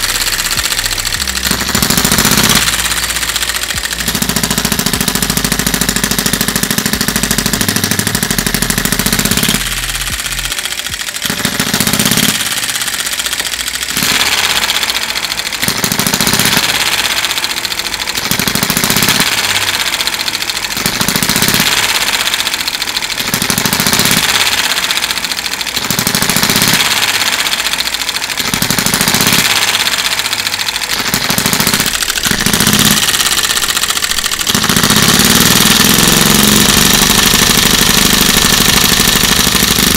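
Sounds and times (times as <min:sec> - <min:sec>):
model engine rattling: 0:00.0 - 0:39.9.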